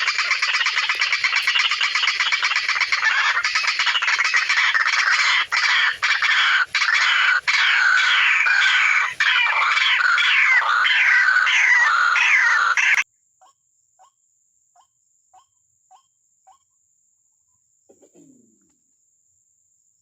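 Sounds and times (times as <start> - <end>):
waterhen calling: 0.0 - 13.0.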